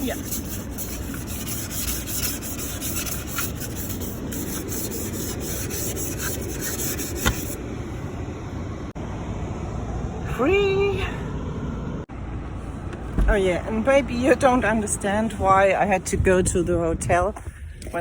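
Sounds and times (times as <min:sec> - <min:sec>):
ice scraper scraping window: 0:00.0 - 0:07.6.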